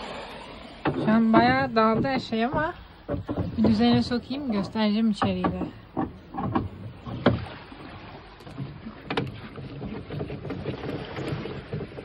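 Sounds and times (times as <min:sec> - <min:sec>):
sharp knocks: 0:00.8 - 0:07.6.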